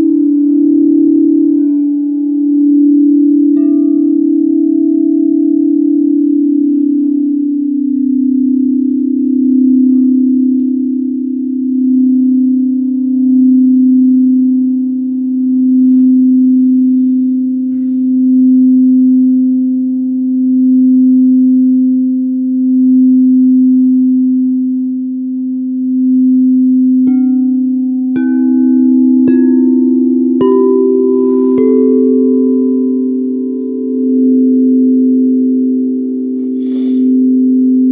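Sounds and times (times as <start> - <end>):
singing bowl low drone: 0.0 - 37.9
singing bowl strikes ringing: 25.6 - 37.7.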